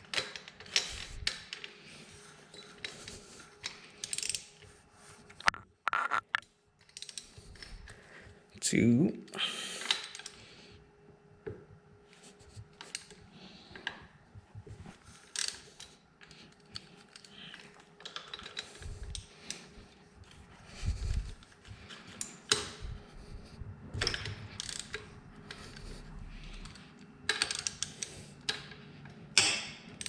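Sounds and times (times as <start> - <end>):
hand ratchet clicking: 24.0 - 25.6, 26.6 - 28.6.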